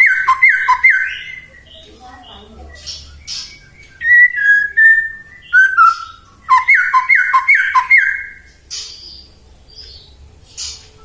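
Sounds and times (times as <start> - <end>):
harsh scratchy bird notes: 0.0 - 1.6, 2.3 - 9.0
bird singing whistled notes: 0.0 - 11.0.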